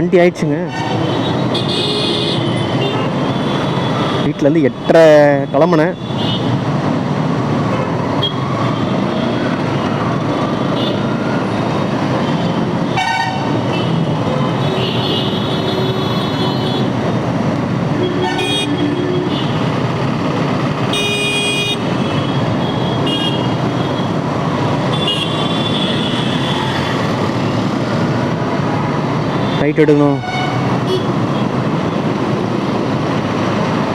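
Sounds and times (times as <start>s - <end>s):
motorcycle road and wind noise: 0.0s - 33.9s
vehicle horns honking: 0.7s - 4.3s, 12.3s - 14.0s, 18.0s - 19.6s, 20.9s - 24.1s, 24.9s - 26.9s, 29.4s - 31.2s.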